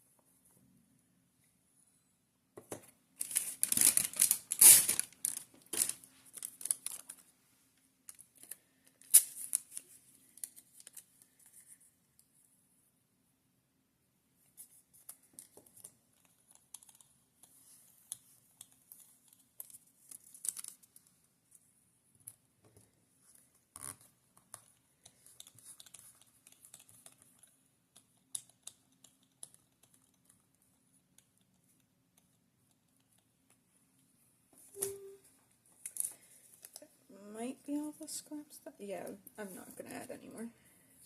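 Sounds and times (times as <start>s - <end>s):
paper rustling and tearing: 3.2s - 7.2s
paper crinkling: 3.2s - 7.3s, 8.1s - 11.9s, 14.6s - 21.2s.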